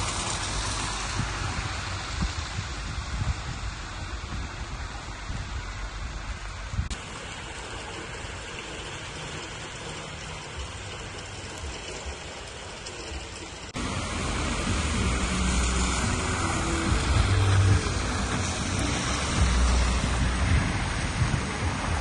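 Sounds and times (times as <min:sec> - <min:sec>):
low rumble: 0:00.0 - 0:07.0, 0:13.7 - 0:22.0
rain on street and cars: 0:00.0 - 0:22.0.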